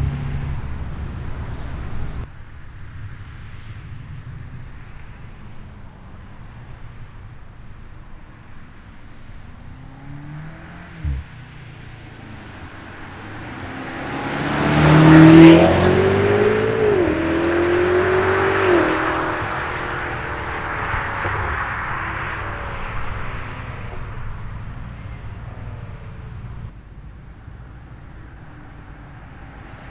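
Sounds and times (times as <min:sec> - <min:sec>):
car engine accelerating hard: 0:00.0 - 0:02.3, 0:09.5 - 0:26.7.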